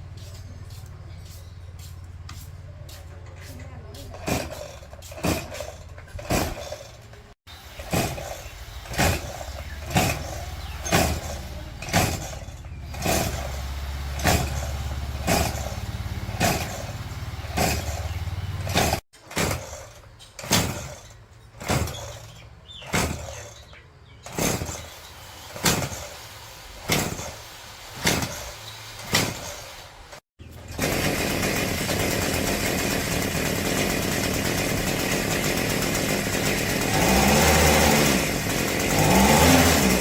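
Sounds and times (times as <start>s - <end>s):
sharp knocks: 7.8s - 13.6s, 14.2s - 19.8s, 20.4s - 23.6s, 25.6s - 26.1s, 26.9s - 27.4s, 28.0s - 29.6s.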